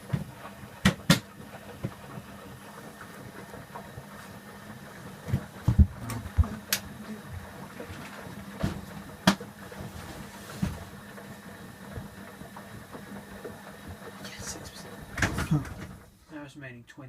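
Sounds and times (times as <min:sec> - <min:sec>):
washing machine motor hum: 0:00.0 - 0:16.4
washing machine clunks and clicks: 0:00.8 - 0:01.4, 0:08.6 - 0:09.5, 0:15.1 - 0:16.0.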